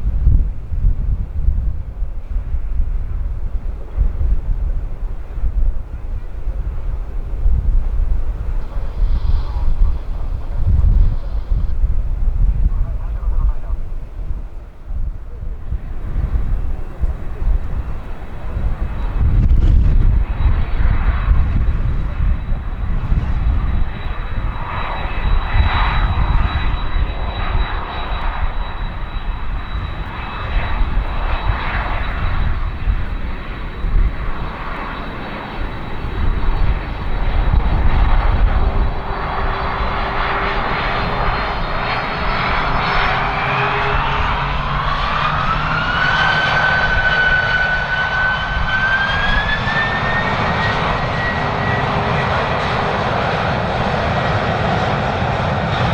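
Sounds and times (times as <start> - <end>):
wind on microphone: 0.0 - 55.9
jet engines spooling up: 7.9 - 12.2, 15.8 - 55.9
rising engine whine: 15.6 - 55.9.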